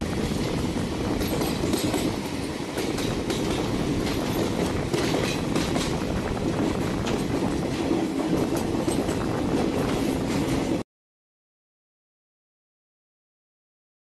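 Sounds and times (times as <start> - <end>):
train wheels rumbling on rails: 0.0 - 10.8
wheels clicking over rail joints: 0.1 - 10.8.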